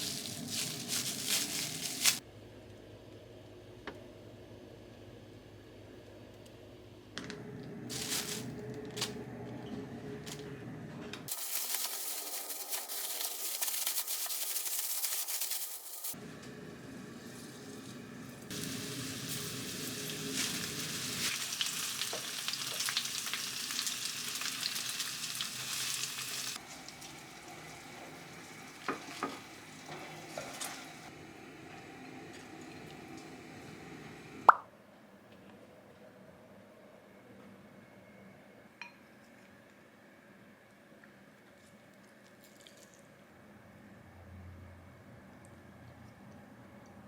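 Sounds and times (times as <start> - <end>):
food sizzling in a pan: 11.3 - 16.2, 16.9 - 34.2.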